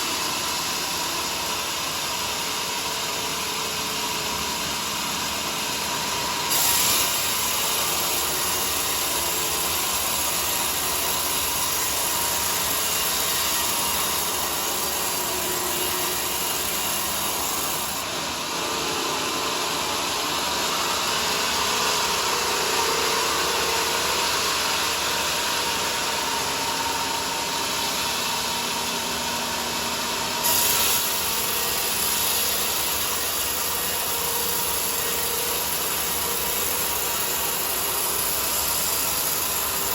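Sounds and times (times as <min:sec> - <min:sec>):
bandsaw cutting log: 0:06.4 - 0:18.1, 0:30.4 - 0:39.9.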